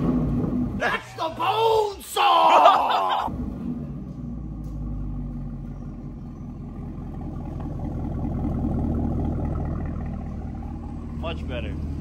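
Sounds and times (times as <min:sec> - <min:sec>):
deep car exhaust note: 0:03.3 - 0:12.0.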